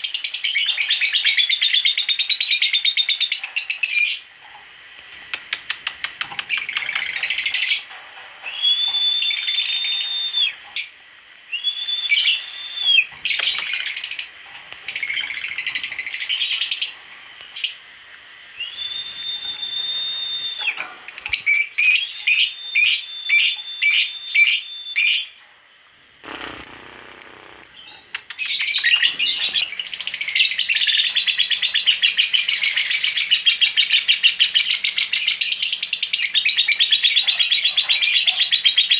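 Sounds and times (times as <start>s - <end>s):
lovebird chattering calls: 13.2s - 14.3s, 26.2s - 38.9s.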